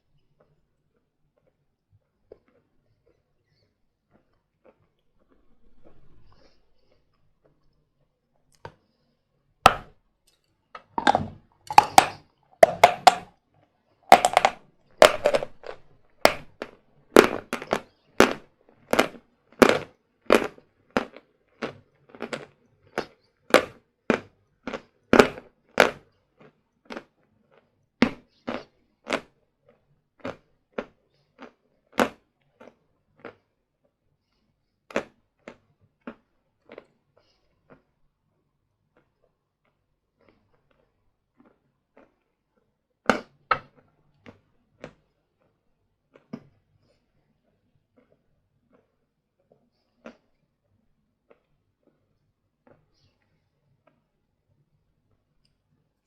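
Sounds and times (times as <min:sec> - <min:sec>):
person crunching chalk: 0:10.8 - 0:13.2, 0:14.1 - 0:26.0.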